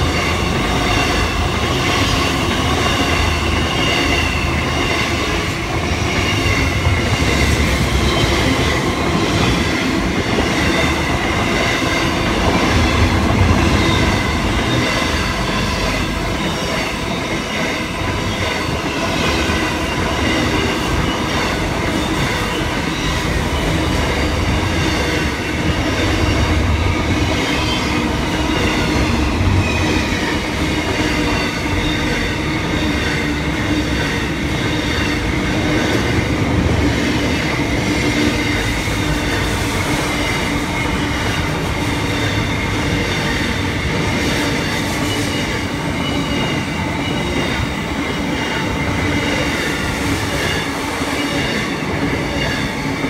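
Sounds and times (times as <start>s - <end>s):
train wheels rumbling and clattering: 0.0s - 53.0s
high wheel squeal: 38.4s - 52.9s.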